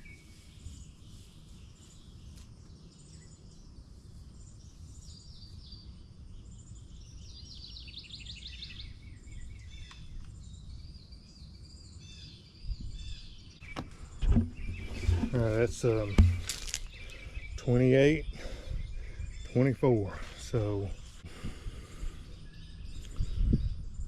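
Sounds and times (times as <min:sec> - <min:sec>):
songbirds chirping: 0:00.0 - 0:24.0
dull low thud: 0:13.7 - 0:17.0.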